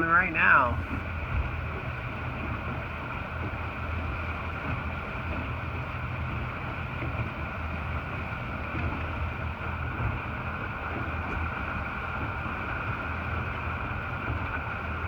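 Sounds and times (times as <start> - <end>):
high engine whine: 0.0 - 1.2
motorboat engine humming: 0.0 - 15.0.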